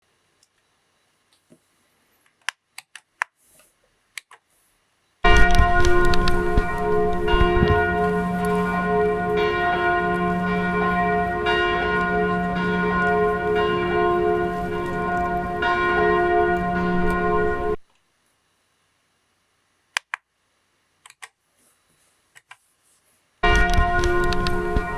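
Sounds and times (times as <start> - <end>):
church bells ringing: 5.3 - 17.8, 23.4 - 24.9.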